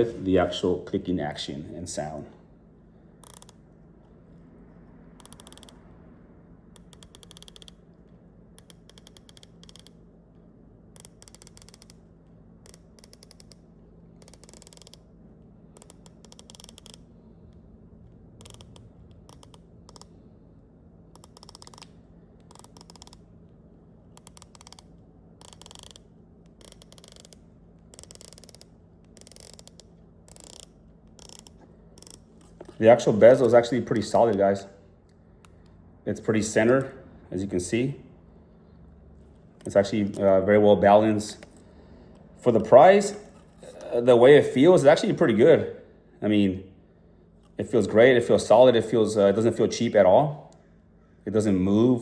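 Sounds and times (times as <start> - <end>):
faint low hum: 0.0 - 52.0
watch bezel ratchet clicks: 3.2 - 3.6, 5.2 - 5.8, 6.7 - 10.0, 10.9 - 15.1, 15.7 - 17.6, 18.4 - 20.2, 21.1 - 23.3, 24.1 - 32.7.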